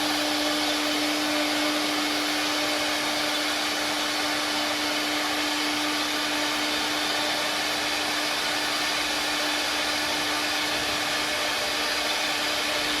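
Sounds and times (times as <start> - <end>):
wood carving machine running: 0.0 - 13.0.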